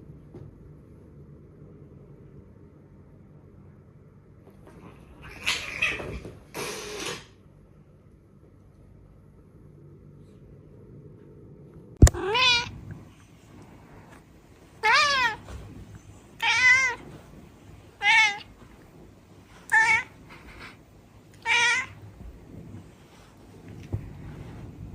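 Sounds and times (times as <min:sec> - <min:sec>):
cat meowing: 0:12.0 - 0:12.8, 0:14.8 - 0:15.5, 0:16.4 - 0:17.0, 0:18.0 - 0:18.5, 0:19.6 - 0:20.2, 0:21.4 - 0:22.0.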